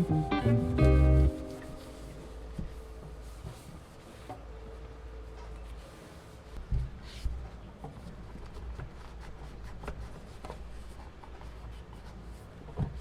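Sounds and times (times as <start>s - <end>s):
light scratching and rubbing: 0.5s - 4.5s.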